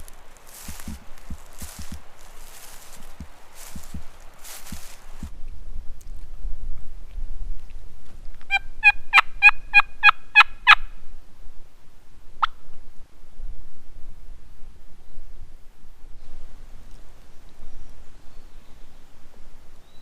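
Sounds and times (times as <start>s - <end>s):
turkey cluck: 8.5s - 10.8s
turkey yelping: 8.5s - 10.8s.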